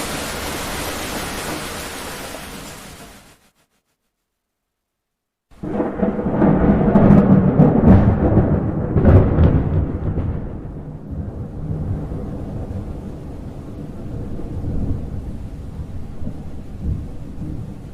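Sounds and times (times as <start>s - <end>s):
sharp thunder cracks: 5.6s - 13.3s
thunder clap and rolling rumble: 5.6s - 17.9s.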